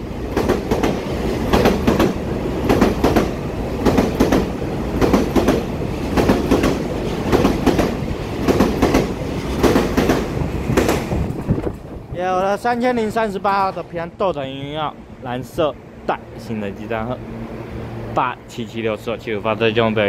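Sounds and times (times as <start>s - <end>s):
train rumble: 0.0s - 20.0s
wheels clacking over rail joints: 0.3s - 14.1s.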